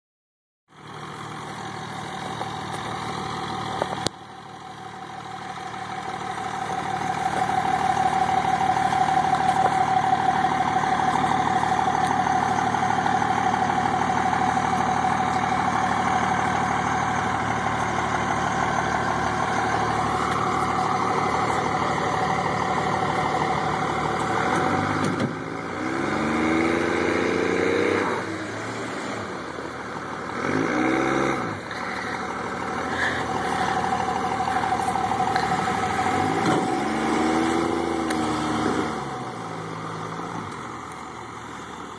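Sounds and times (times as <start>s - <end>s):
diesel engine under load whining: 0.7s - 41.9s.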